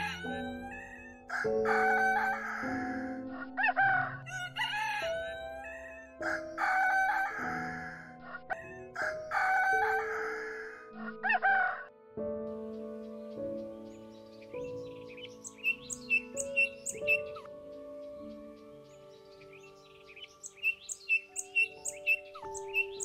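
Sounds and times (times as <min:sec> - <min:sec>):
background music: 0:00.0 - 0:23.0
rooster crowing: 0:01.3 - 0:03.2, 0:09.0 - 0:10.8.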